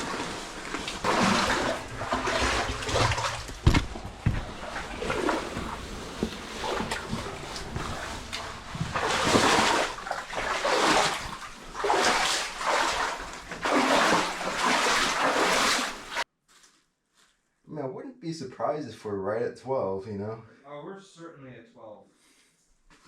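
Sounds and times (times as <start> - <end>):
faint scuffs and knocks: 2.8 - 9.2, 16.4 - 17.4.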